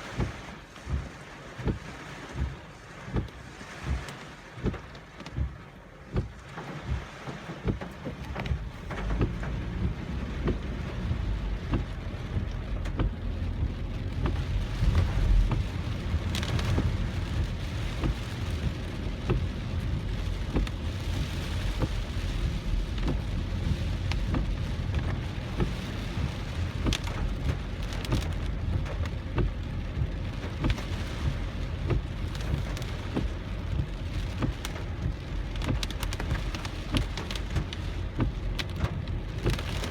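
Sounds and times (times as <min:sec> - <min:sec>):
car and wind rumble: 0:00.0 - 0:39.9
heavy rain hitting a car: 0:00.0 - 0:39.9.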